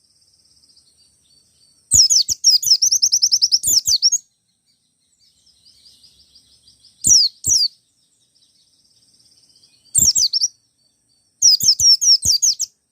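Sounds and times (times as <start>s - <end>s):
bird whistled calls: 1.9s - 4.3s, 5.2s - 7.8s, 9.6s - 10.6s, 11.4s - 12.8s.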